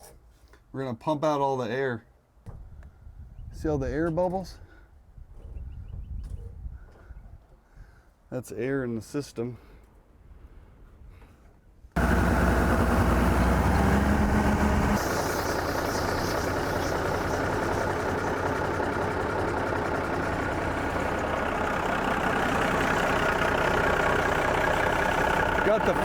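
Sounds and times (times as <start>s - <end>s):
diesel truck engine rumbling: 12.0s - 26.0s.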